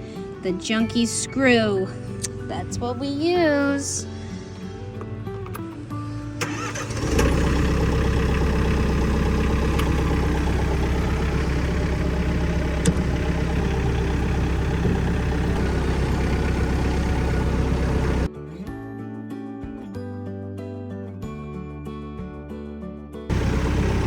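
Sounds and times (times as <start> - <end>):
tractor engine idling: 6.4 - 18.3, 23.3 - 24.0.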